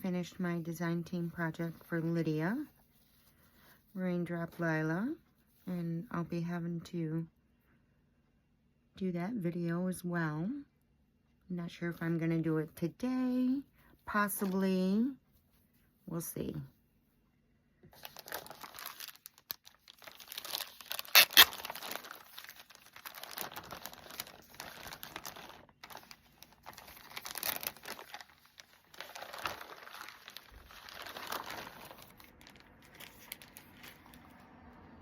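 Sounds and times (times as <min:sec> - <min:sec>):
packaging crinkling and rustling: 0:17.9 - 0:34.4.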